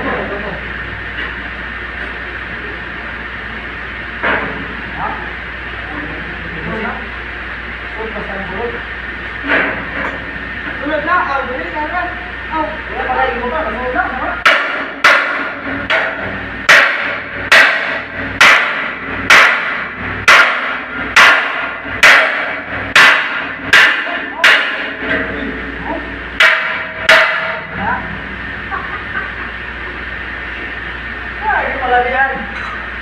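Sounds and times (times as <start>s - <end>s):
hammer strikes ringing: 14.4s - 25.3s, 26.4s - 27.6s.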